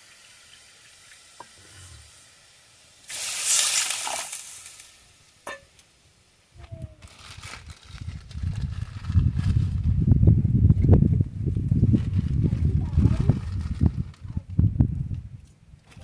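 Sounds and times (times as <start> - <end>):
hot oil sizzling in a pan: 0.0 - 5.4
low rumbling: 1.5 - 2.2, 6.6 - 15.4.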